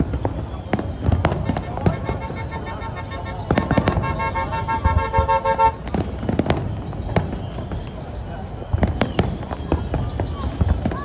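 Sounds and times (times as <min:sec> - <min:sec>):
horn blast: 0:01.3 - 0:05.9.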